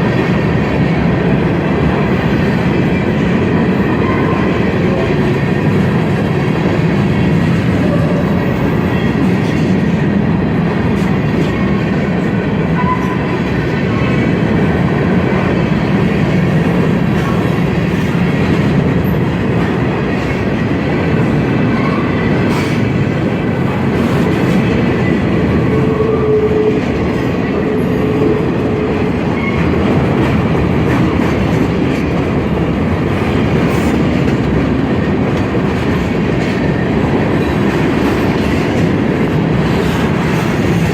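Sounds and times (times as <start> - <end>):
train wheels clattering over rail joints: 28.3 - 40.9.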